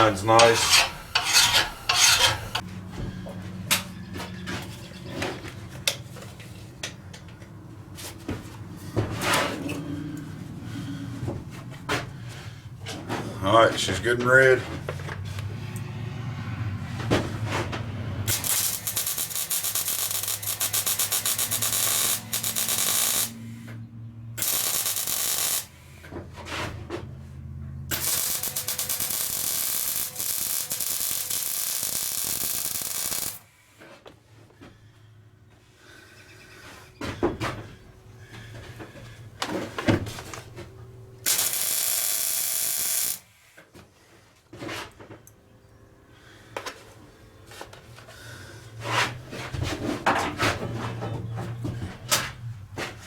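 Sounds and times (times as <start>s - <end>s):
welder crackling buzz: 0.0s - 2.6s, 18.3s - 23.4s, 24.4s - 25.8s, 27.9s - 33.4s, 41.2s - 43.3s.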